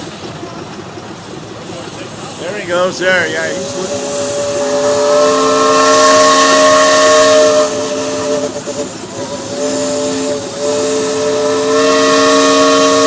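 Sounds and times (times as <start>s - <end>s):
steam hissing: 0.0s - 13.0s
steam whistle chord: 2.7s - 13.0s.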